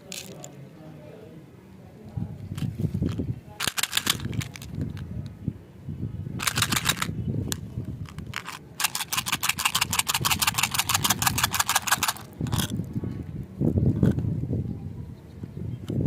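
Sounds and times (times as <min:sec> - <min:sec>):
rapid even clicking: 0:03.6 - 0:05.0, 0:06.4 - 0:07.1, 0:08.0 - 0:12.7.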